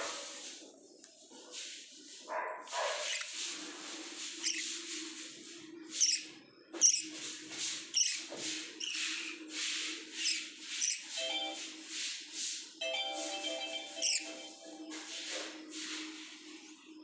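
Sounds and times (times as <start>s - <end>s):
lovebirds chirping: 2.9s - 3.4s, 4.1s - 4.9s, 5.8s - 9.5s, 10.1s - 11.2s, 13.2s - 15.0s.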